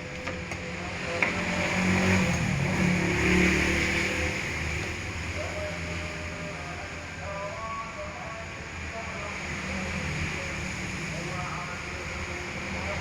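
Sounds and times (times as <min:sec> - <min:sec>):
motor vehicle passing by: 0:00.3 - 0:05.7.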